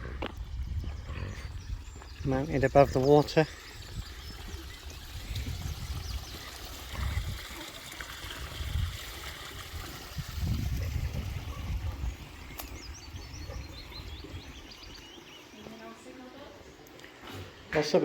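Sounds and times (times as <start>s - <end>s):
dull low rumbles: 0.0s - 7.4s
stream trickling: 1.5s - 16.9s.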